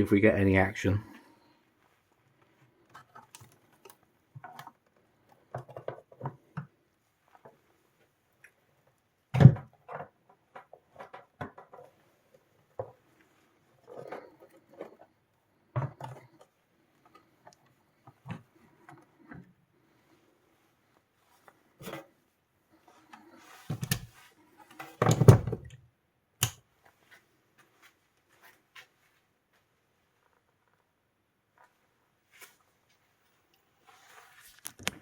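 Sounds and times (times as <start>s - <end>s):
clicks and taps of parts handled: 26.4s - 26.6s.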